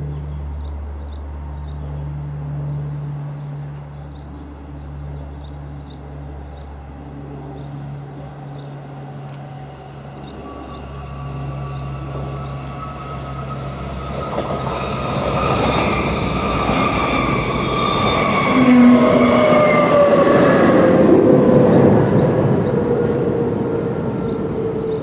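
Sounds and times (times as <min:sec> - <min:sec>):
train approaching: 0:00.0 - 0:25.0
high whining train wheels: 0:06.0 - 0:25.0.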